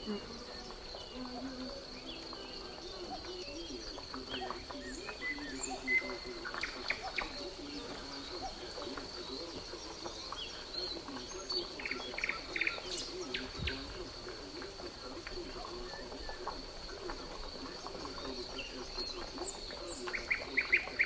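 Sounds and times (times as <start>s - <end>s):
bird chirps and trills: 0.0s - 14.1s.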